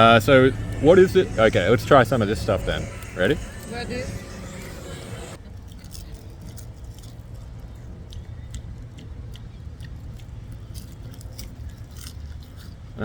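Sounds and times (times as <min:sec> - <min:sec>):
steady low rumble: 0:00.0 - 0:05.4
crisp snack being chewed: 0:05.7 - 0:13.0.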